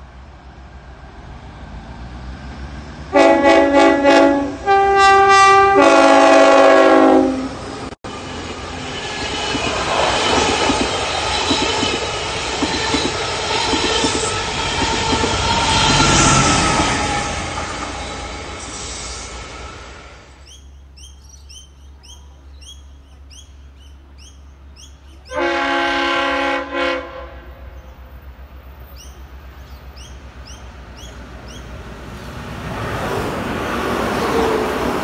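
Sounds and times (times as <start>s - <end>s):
train horn blasts: 3.1s - 8.4s, 25.2s - 27.8s
train wheels clicking over joints: 8.4s - 18.9s.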